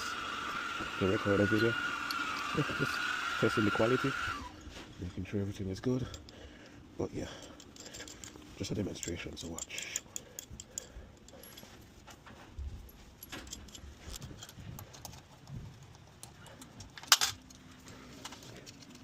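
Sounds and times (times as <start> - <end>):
faint steady hum: 0.0 - 19.0
small metal parts clinking: 7.1 - 19.0.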